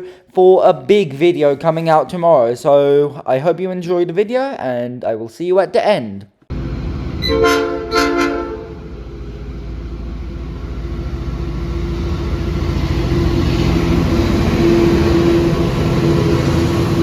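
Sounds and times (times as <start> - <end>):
diesel locomotive engine rumble: 6.5 - 17.0
steady drone: 6.5 - 17.0.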